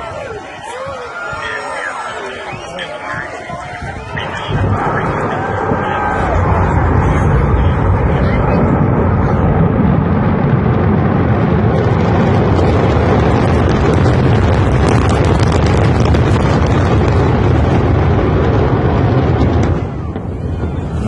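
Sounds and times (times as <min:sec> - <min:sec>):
rocket engine rumble: 0:00.0 - 0:21.0.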